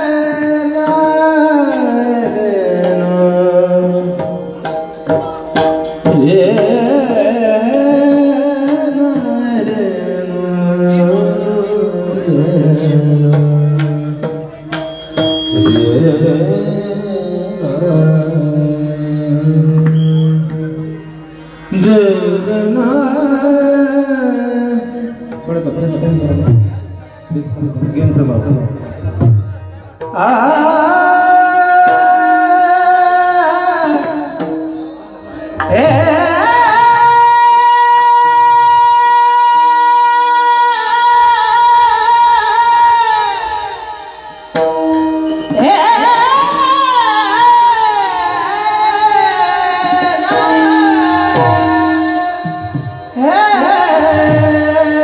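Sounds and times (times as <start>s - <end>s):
high voice singing: 30.0s - 55.0s.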